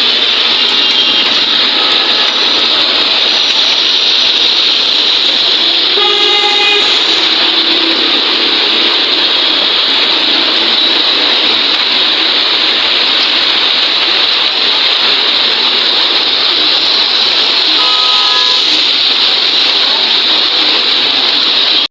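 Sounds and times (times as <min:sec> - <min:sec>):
heavy rain hissing: 0:00.0 - 0:21.9.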